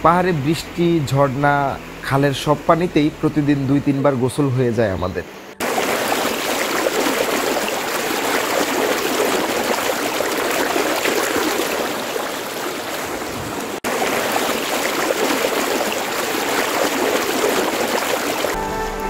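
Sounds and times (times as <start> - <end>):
stream rushing over rocks: 5.6 - 19.0.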